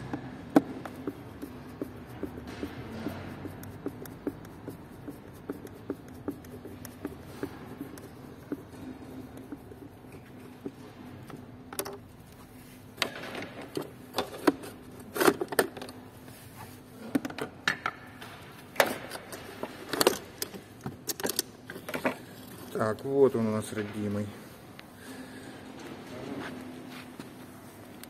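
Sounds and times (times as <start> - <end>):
knocks and clatter of handled parts: 0.0 - 12.0, 13.0 - 16.0, 17.0 - 23.0.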